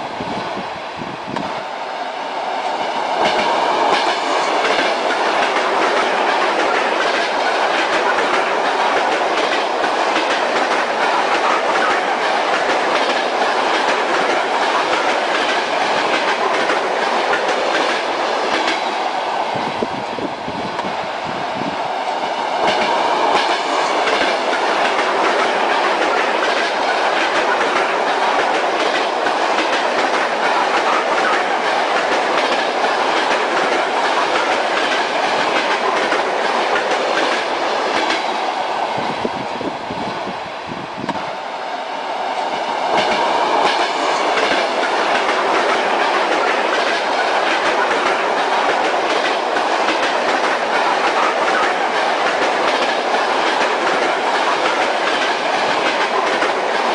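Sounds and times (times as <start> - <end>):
train rumbling on track: 0.0 - 56.9
wheels clacking over rail joints: 3.1 - 19.0, 22.5 - 38.5, 42.8 - 56.9.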